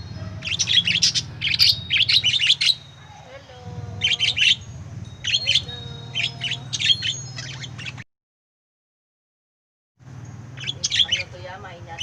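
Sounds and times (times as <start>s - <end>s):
steady low hum: 0.0s - 8.0s
lovebirds chirping and squawking: 0.0s - 8.1s, 10.2s - 12.0s.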